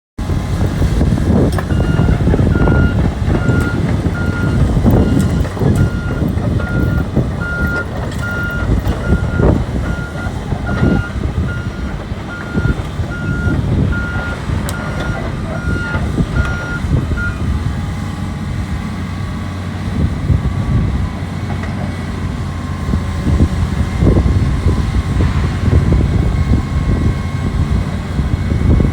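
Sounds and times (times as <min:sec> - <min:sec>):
diesel engine under load: 0:00.2 - 0:28.9
motion alarm beeping: 0:01.7 - 0:17.4.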